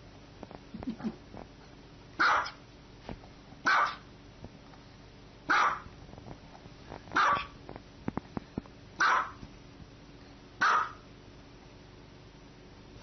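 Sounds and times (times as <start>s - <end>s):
dog barking: 2.2s - 2.6s, 3.6s - 4.1s, 5.5s - 5.9s, 7.2s - 7.6s, 9.0s - 9.4s, 10.6s - 11.0s.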